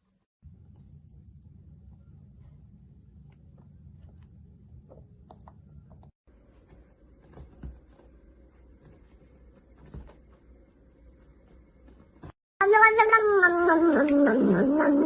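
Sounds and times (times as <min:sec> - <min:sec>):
low hum: 0:00.4 - 0:12.4
faint taps and rustles: 0:05.9 - 0:12.4.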